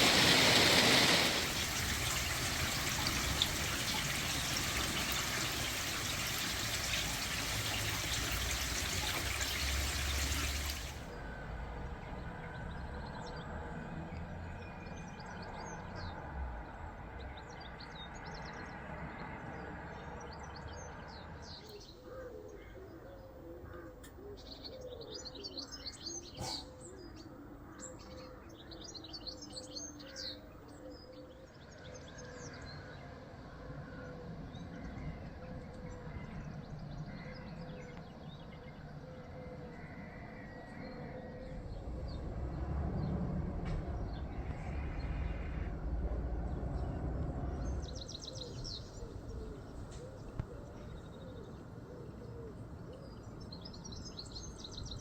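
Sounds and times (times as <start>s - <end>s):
small birds chirping: 0.0s - 11.1s
water running: 0.0s - 11.1s.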